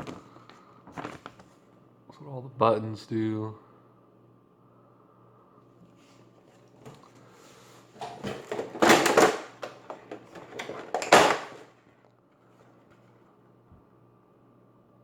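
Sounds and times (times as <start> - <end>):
box contents rustling: 8.0 - 11.7.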